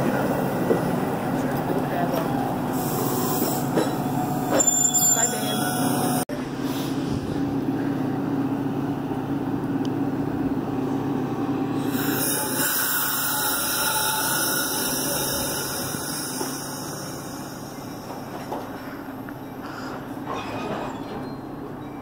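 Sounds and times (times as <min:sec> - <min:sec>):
train rolling slowly: 0:00.0 - 0:22.0.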